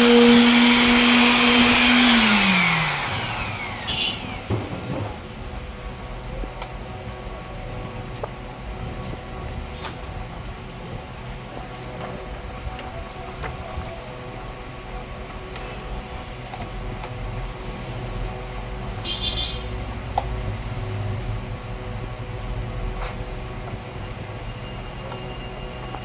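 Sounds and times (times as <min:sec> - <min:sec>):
electric sander on plastic: 0:00.0 - 0:05.4.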